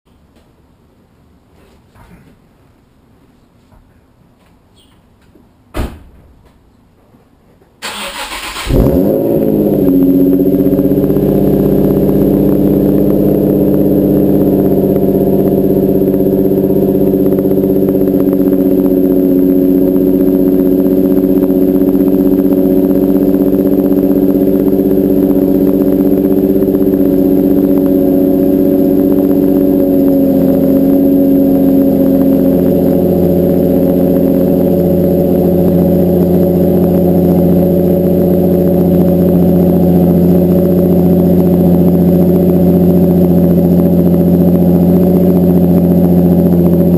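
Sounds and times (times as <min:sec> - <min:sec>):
car engine fast idle: 0:07.8 - 0:09.8.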